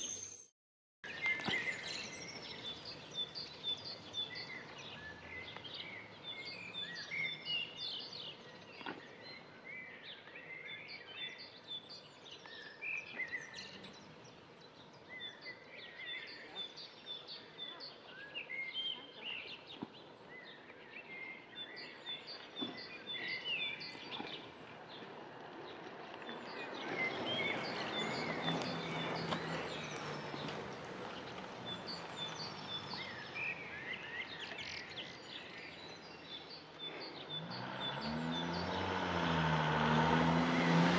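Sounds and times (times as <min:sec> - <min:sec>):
birds chirping and calling: 0:26.2 - 0:38.9.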